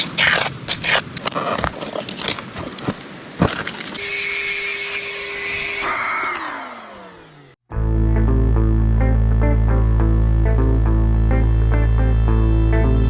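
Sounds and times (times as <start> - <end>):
shop vacuum motor whining: 9.3 - 13.0.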